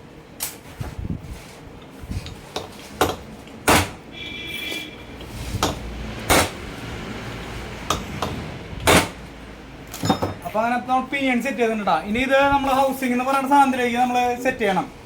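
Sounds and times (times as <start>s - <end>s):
metal knocks and clanks: 9.9s - 10.5s.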